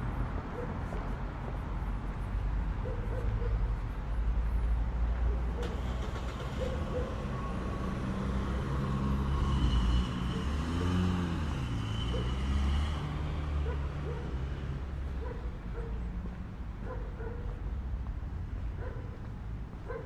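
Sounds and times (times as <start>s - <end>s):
vehicle engine passing: 5.7s - 15.3s.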